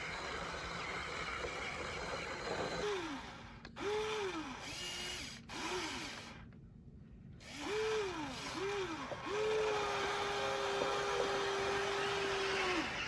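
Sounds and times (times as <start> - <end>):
small electric motor whining: 0.0 - 6.5, 7.4 - 13.0.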